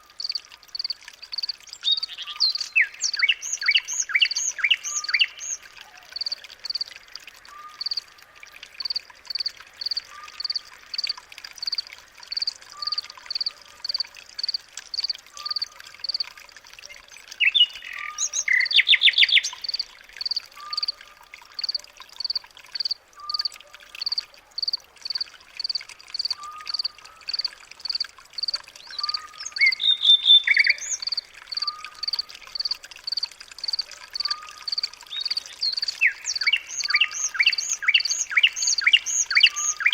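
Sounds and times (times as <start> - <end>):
rapid bird chirping: 21.6 - 39.9.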